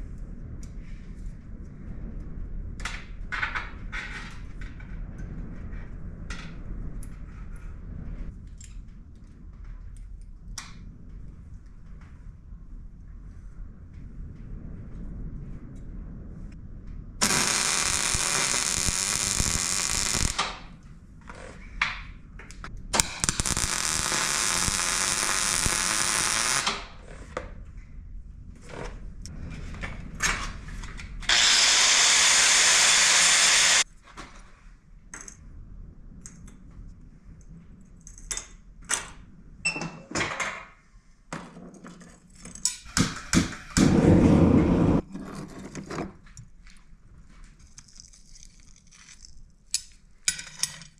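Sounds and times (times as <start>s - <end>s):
power tool on metal: 17.2s - 20.5s, 23.0s - 26.8s, 31.3s - 33.8s
metal parts clicking and knocking: 47.7s - 50.9s.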